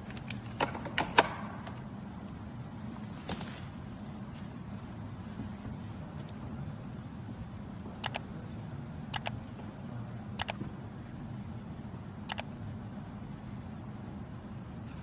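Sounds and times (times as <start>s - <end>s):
sharp double clicks: 8.0s - 8.2s, 9.2s - 9.4s, 10.4s - 10.6s, 12.3s - 12.5s.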